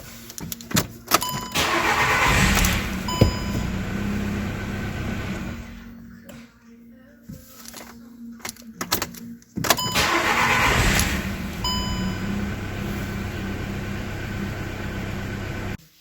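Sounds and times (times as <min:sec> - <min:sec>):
car engine cranking and idling: 0:01.2 - 0:06.1, 0:09.7 - 0:15.8
short beep: 0:03.0 - 0:03.8, 0:11.6 - 0:12.4.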